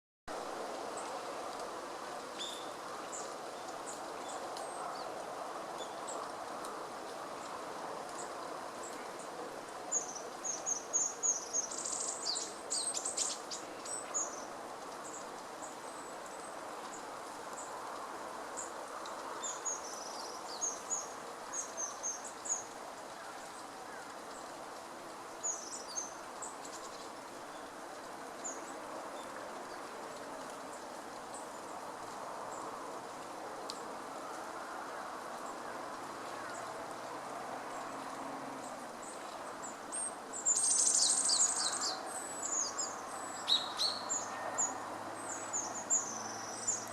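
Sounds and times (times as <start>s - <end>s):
bird chirping calls: 40.5s - 46.9s.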